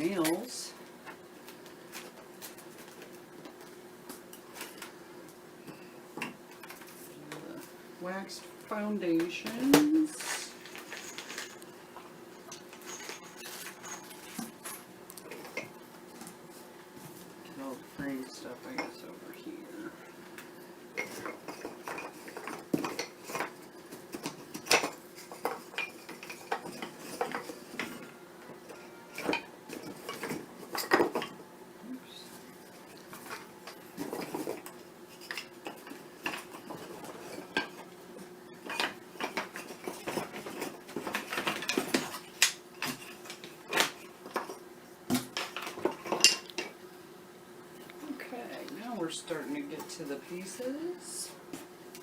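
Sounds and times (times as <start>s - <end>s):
faint steady hum: 0.0s - 52.0s
wooden frames clattering: 9.4s - 11.6s.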